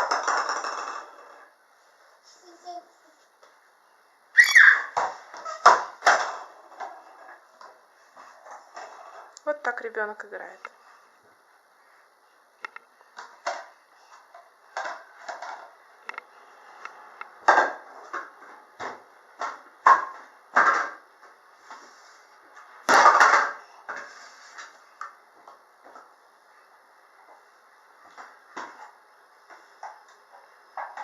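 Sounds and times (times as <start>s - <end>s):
toys knocking and rattling: 0.0s - 1.4s, 5.0s - 7.7s, 14.7s - 15.8s, 22.9s - 24.0s.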